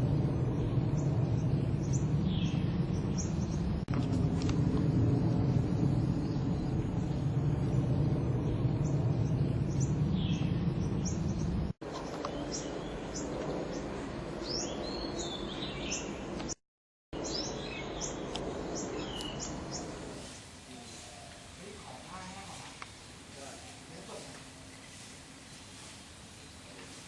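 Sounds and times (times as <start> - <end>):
small birds chirping: 0.0 - 3.8, 5.8 - 16.6, 17.2 - 20.1
low rumble: 0.0 - 11.8.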